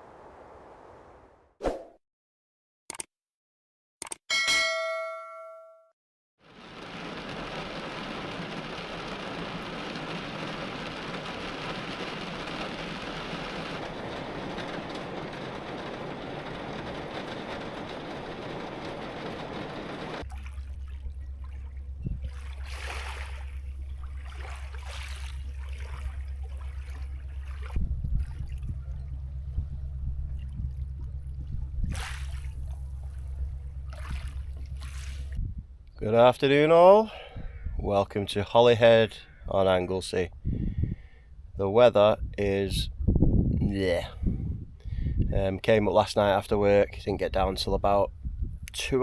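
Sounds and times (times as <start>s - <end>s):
heavy rain falling: 6.5s - 20.2s
strong low rumble: 6.5s - 36.1s, 39.1s - 49.0s
faint splashes: 20.2s - 28.9s, 30.3s - 35.4s.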